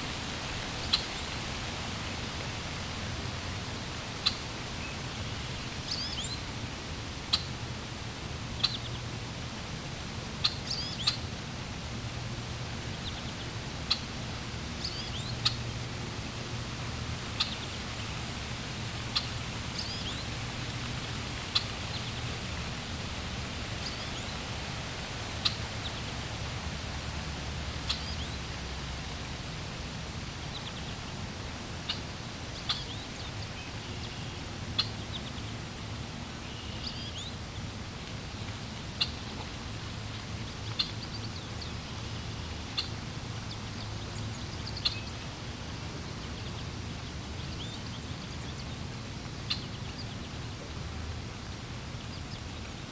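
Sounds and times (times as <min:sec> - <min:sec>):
flowing water: 0:00.0 - 0:52.9
small birds chirping: 0:27.8 - 0:28.5, 0:39.0 - 0:39.5, 0:40.5 - 0:42.0, 0:42.6 - 0:45.3.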